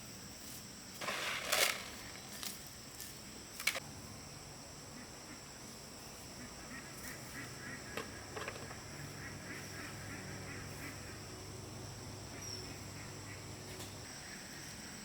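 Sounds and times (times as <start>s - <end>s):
high insect drone: 0.0s - 15.0s
birds calling: 6.4s - 15.0s.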